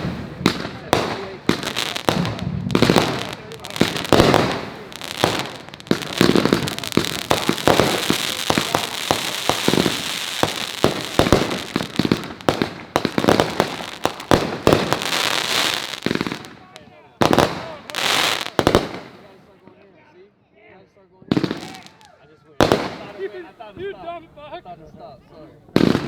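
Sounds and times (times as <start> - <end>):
firework shells bursting: 0.0 - 19.2
firework crackling: 0.0 - 19.4, 21.3 - 22.0, 25.8 - 26.0.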